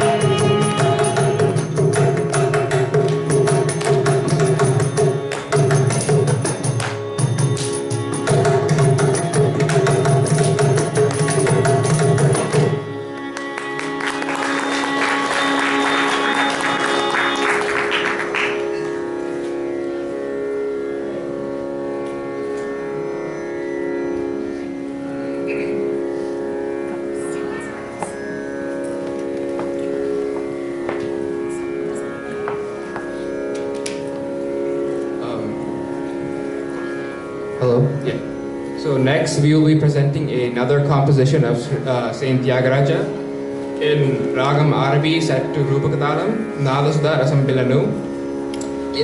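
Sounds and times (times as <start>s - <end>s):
sustained violin: 0.0s - 49.0s.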